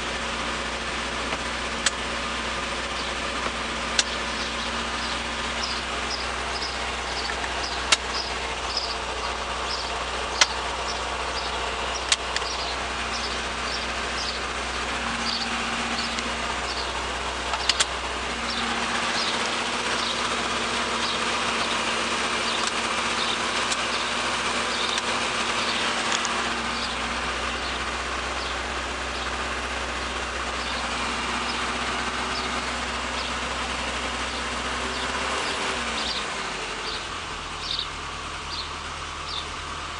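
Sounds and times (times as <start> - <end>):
car engine idling: 0.0 - 39.9
sharp clicks: 3.4 - 4.2, 7.1 - 8.3, 10.4 - 10.6, 12.0 - 12.6, 17.5 - 18.0, 22.5 - 24.0, 24.8 - 26.4.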